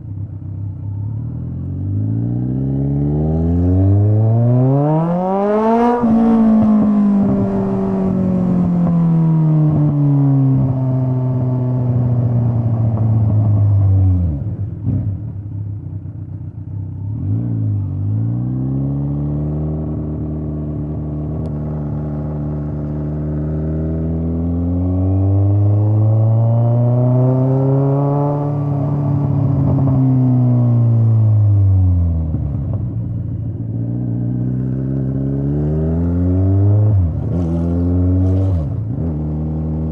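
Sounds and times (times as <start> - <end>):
motorcycle exhaust revving: 0.4 - 15.4.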